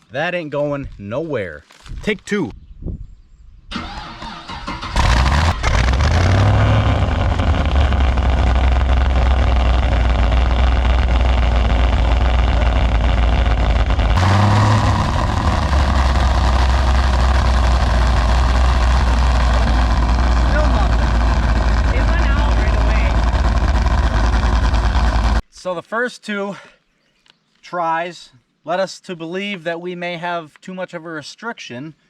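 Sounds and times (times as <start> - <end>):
car engine starting and idling: 3.7 - 25.4
exhaust whistling: 3.7 - 25.4.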